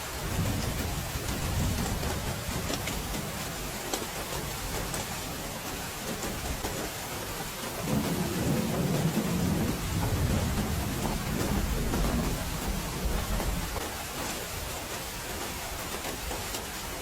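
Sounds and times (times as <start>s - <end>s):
heavy rain falling: 0.0s - 17.0s
thunder rumbling: 0.1s - 3.5s, 7.8s - 13.8s
sharp raindrop ticks: 0.2s - 17.0s.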